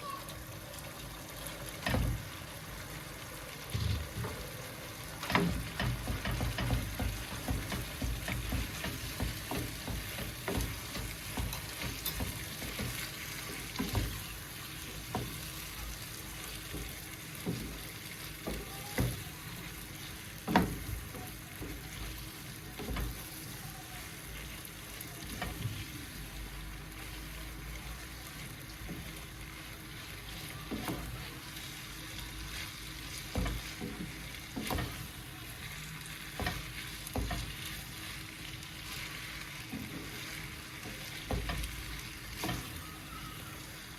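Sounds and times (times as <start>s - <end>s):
food sizzling in a pan: 0.0s - 43.9s
utensil knocking while stirring: 5.2s - 23.6s, 28.8s - 42.8s.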